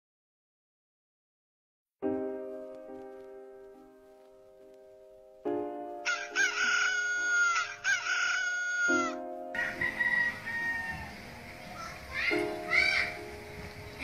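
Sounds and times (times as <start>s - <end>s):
background music: 2.0s - 14.0s
rooster crowing: 6.0s - 11.4s.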